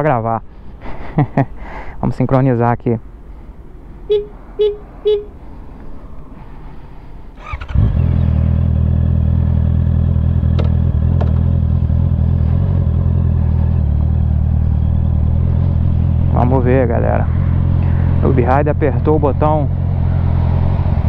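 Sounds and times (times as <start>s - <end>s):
short beeps: 4.1s - 5.3s
motorcycle starter cranking: 7.4s - 7.9s
motorcycle engine idling: 7.4s - 16.6s.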